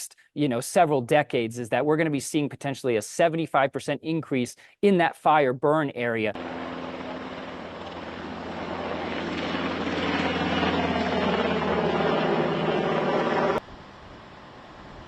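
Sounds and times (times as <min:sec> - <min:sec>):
aircraft engine humming: 0:06.4 - 0:15.0.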